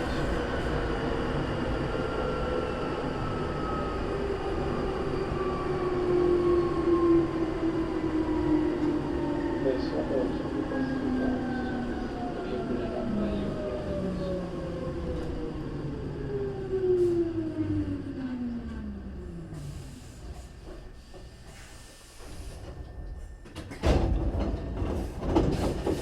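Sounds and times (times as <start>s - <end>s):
train doors sliding open: 19.4s - 26.0s.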